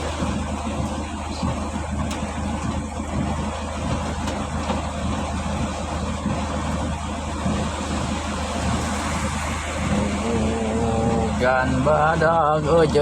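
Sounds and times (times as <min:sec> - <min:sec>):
heavy rain pouring: 0:00.0 - 0:13.0
vehicle engine idling: 0:00.0 - 0:13.0
strong wind: 0:06.2 - 0:11.9.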